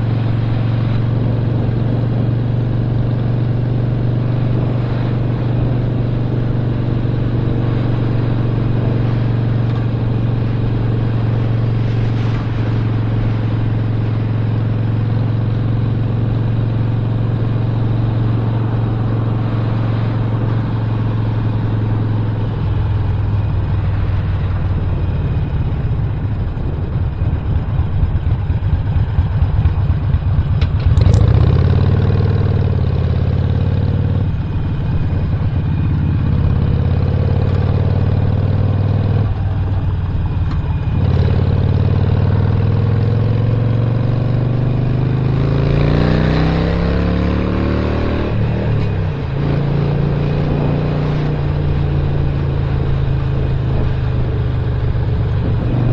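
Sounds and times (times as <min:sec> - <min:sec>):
motorcycle engine running: 0:00.0 - 0:55.9
sharp click: 0:30.6 - 0:31.5.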